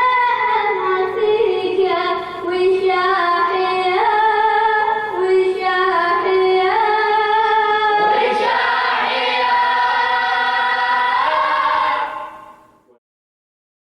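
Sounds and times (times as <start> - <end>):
group singing devotional chant: 5.0 - 12.7.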